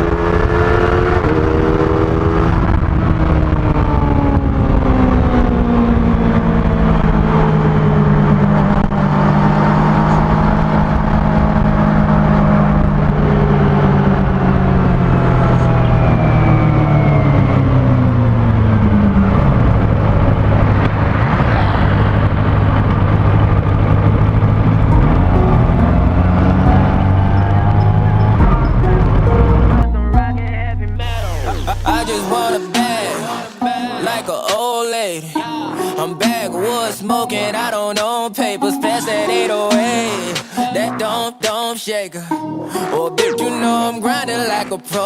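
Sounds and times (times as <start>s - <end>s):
motorcycle engine running: 21.9s - 30.4s.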